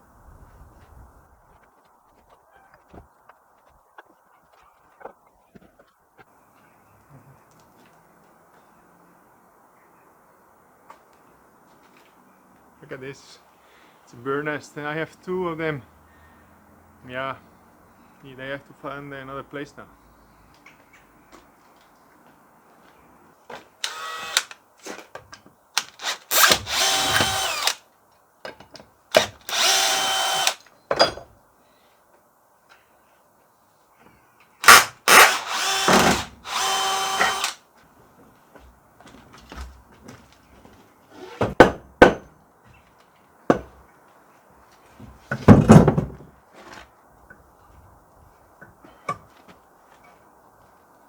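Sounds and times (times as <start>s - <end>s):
power drill running: 23.8s - 24.6s, 25.9s - 27.8s, 29.1s - 30.6s, 34.6s - 37.6s.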